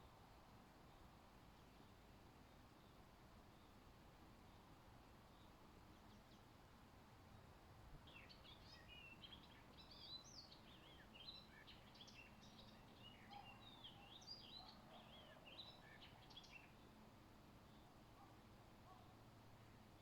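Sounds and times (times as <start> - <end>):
low background hiss: 0.0 - 20.0
songbird singing: 8.0 - 17.0, 17.6 - 20.0.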